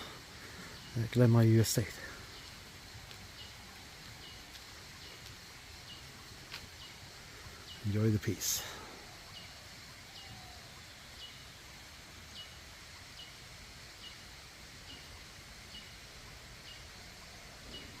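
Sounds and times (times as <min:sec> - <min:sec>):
bird calling: 0:03.3 - 0:11.6.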